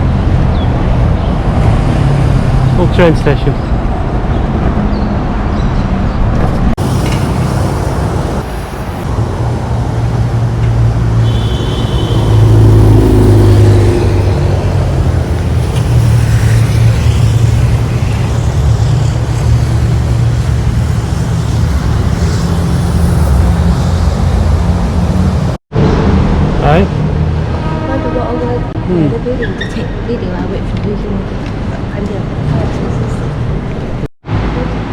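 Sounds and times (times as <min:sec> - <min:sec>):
rumble of passing vehicles: 0:00.0 - 0:34.9
heavy vehicle passing: 0:06.6 - 0:29.3.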